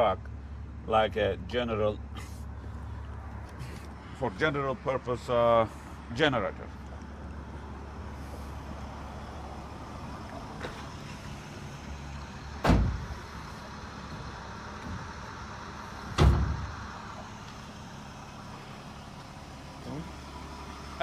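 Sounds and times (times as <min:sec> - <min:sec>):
loud thumps with low rumble: 0:12.6 - 0:13.4, 0:16.1 - 0:16.9.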